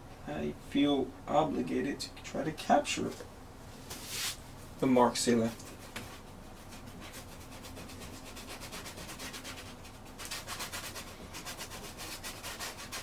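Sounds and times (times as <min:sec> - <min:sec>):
brush scrubbing on canvas: 0:04.0 - 0:04.4, 0:05.2 - 0:13.0.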